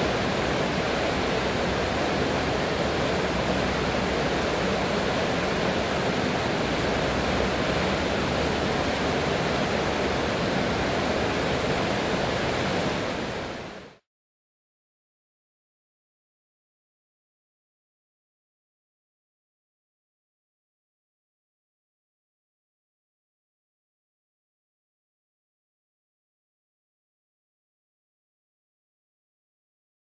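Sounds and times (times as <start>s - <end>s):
rushing flowing water: 0.0s - 14.1s.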